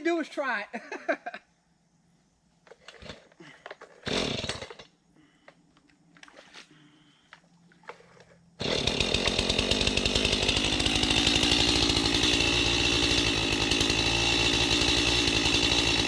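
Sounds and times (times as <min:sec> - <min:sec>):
chainsaw running: 0:02.8 - 0:04.9, 0:08.6 - 0:16.0.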